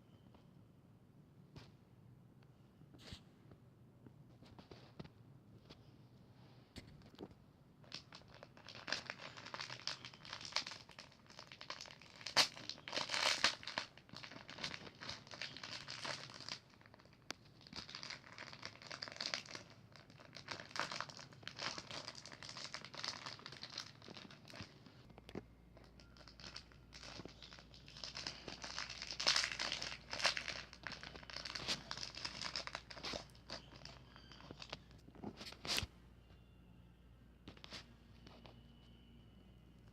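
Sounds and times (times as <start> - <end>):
packaging crinkling and tearing: 7.8 - 35.8.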